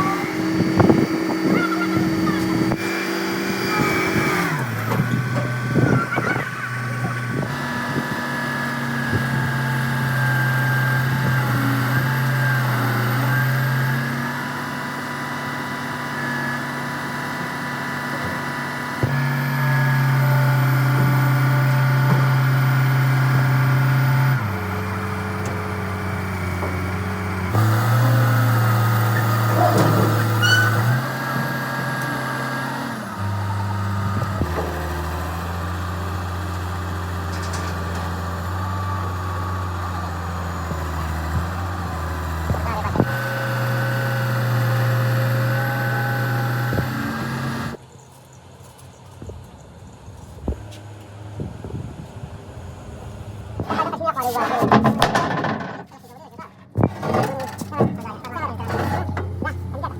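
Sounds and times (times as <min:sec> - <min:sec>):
truck engine idling: 0:00.0 - 0:47.9, 0:50.6 - 0:59.9.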